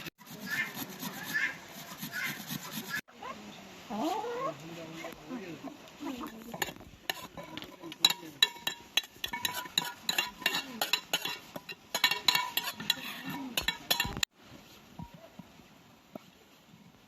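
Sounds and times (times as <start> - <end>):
utensil clinking against a dish: 6.2 - 14.3.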